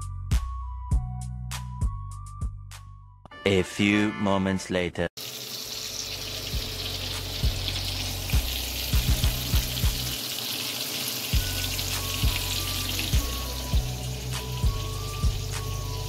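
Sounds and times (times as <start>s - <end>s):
fish frying in oil: 5.2s - 16.0s.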